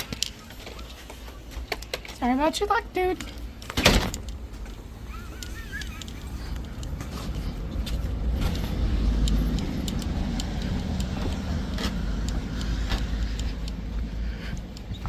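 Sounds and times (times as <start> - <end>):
car passing: 4.9 - 15.0.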